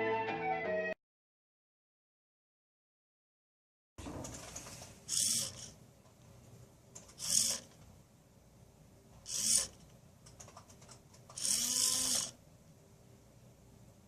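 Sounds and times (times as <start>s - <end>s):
small servo motor whirring: 5.1s - 5.8s, 7.2s - 7.7s, 9.3s - 9.8s, 11.4s - 12.4s.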